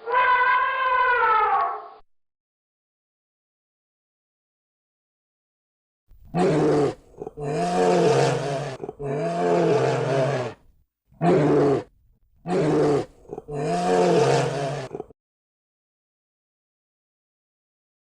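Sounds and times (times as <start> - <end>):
big cat roaring: 6.3 - 10.6, 11.2 - 11.9, 12.5 - 15.1.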